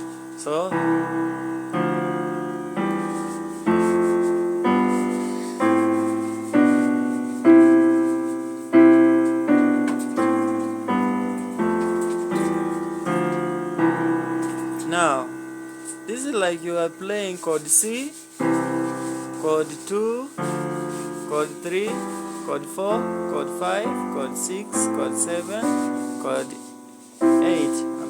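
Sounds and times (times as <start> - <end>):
piano chords ringing: 0.0 - 28.0.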